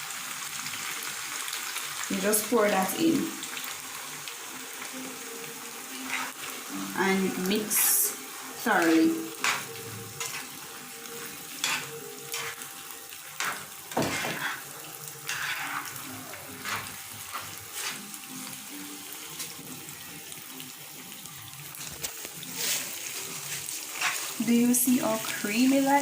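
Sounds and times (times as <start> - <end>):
low sizzle: 0.0 - 26.0
spoon scraping a pot: 6.0 - 6.4, 8.8 - 10.6, 11.2 - 12.6, 13.4 - 18.1.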